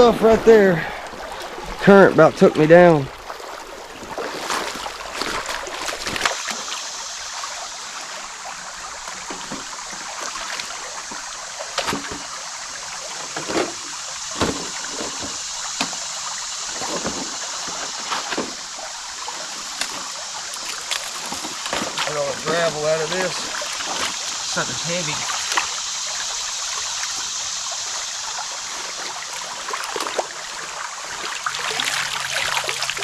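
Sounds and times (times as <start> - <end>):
person wading through water: 0.0 - 8.1, 16.7 - 25.8, 28.6 - 33.0
creek water flowing: 0.0 - 33.0.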